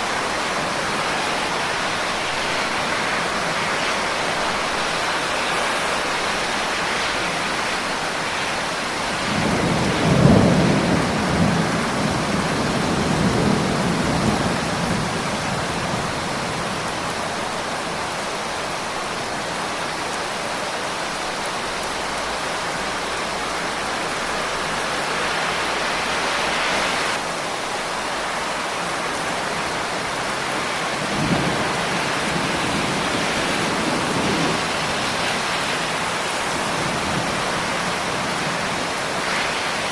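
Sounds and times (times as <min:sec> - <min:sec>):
heavy rain: 0:00.0 - 0:39.9
thunder rumbling: 0:09.1 - 0:16.2.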